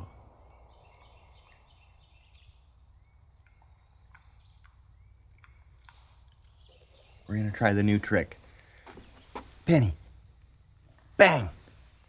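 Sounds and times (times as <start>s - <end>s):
faint clicks: 0.0s - 7.3s
faint bird chirps: 0.0s - 10.5s.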